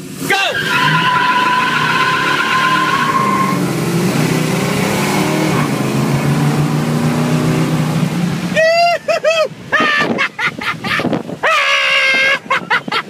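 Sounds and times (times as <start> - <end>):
engines at full throttle: 0.0 - 8.7
tires squealing: 0.2 - 5.9.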